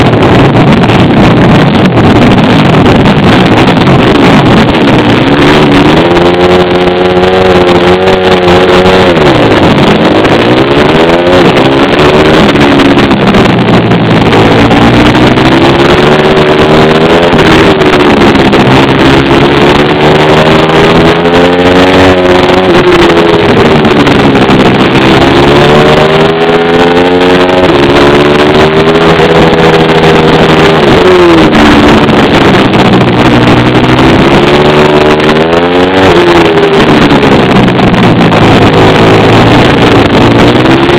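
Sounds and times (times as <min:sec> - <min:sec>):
pit bike engine revving: 0:00.0 - 0:40.9.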